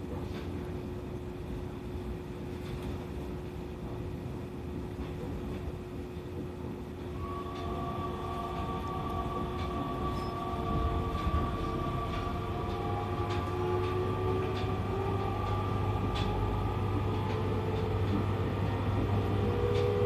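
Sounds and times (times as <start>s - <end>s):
train rumble: 0.0s - 20.0s
train motor whine: 7.1s - 20.0s.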